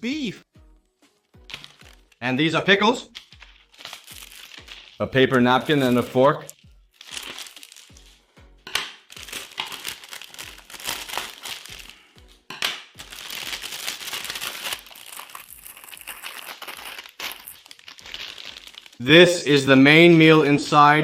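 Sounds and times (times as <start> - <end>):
plastic packaging crinkling: 1.2 - 2.2, 3.1 - 8.2, 9.0 - 12.1, 13.0 - 19.1.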